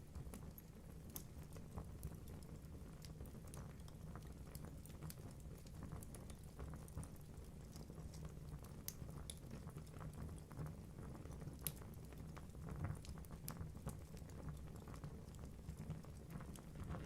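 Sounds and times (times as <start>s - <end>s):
logs crackling and popping: 0.1s - 17.0s
rush of flames: 16.4s - 17.0s.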